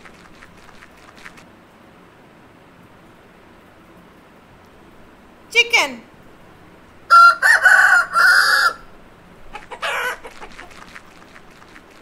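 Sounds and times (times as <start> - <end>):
rooster crowing: 7.1 - 8.9, 9.8 - 10.3.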